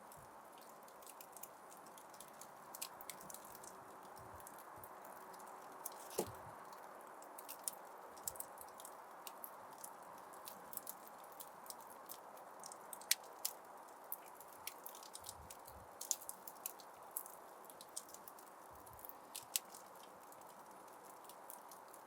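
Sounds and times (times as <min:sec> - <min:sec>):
soft hiss of fire: 0:00.0 - 0:22.0
fire crackling and popping: 0:00.6 - 0:17.0.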